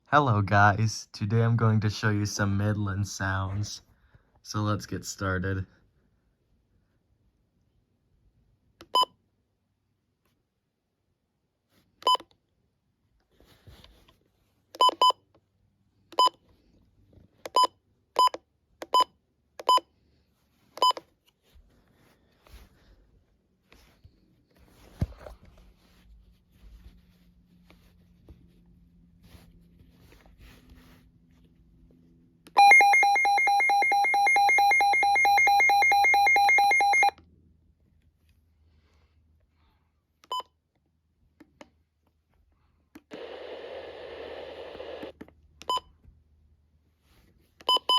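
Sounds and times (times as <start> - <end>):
radio keypad beeps: 32.6 - 37.1.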